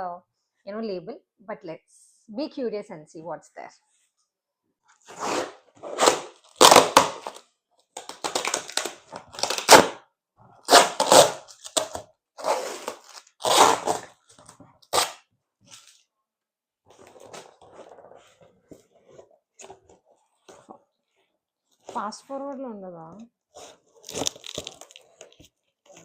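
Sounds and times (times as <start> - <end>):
packaging ripping and crackling: 5.1 - 7.4, 8.0 - 9.9, 10.6 - 14.2, 23.6 - 26.0
packaging rustling: 23.5 - 26.0.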